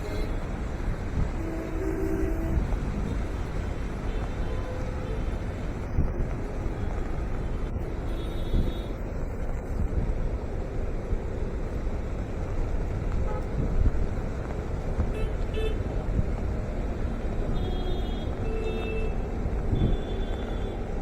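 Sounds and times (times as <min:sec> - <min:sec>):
traffic rumble: 0:00.0 - 0:21.0
car horn honks: 0:01.4 - 0:03.1, 0:17.5 - 0:20.8.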